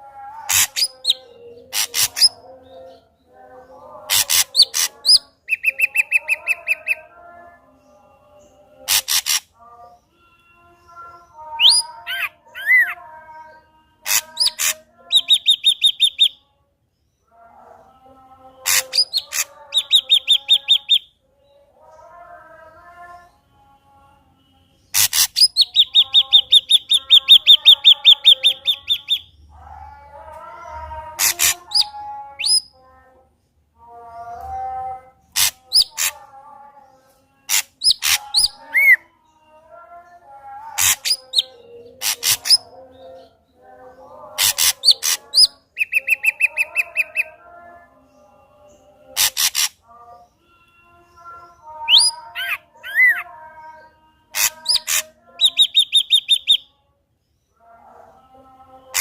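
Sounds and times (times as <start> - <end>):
bird singing whistled song: 51.9 - 53.2, 54.7 - 56.7.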